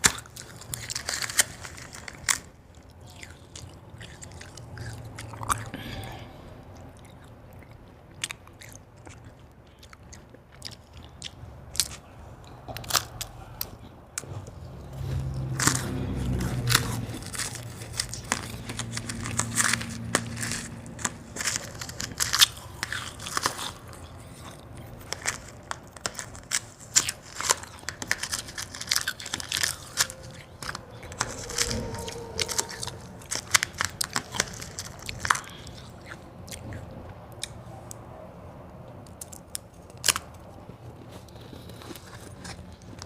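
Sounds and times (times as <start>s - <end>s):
chewing: 0.0s - 38.1s, 38.9s - 43.0s
ice crunching: 15.1s - 36.0s.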